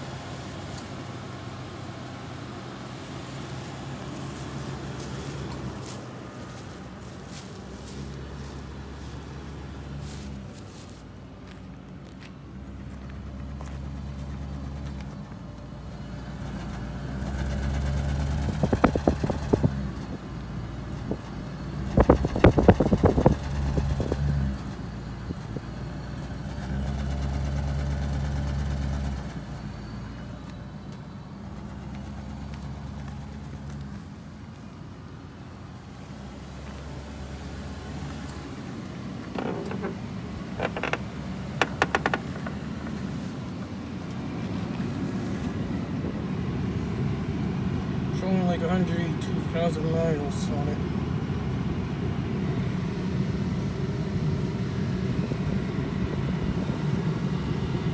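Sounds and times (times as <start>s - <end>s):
car engine idling: 0.0s - 57.9s
short crackling noises: 39.2s - 43.3s.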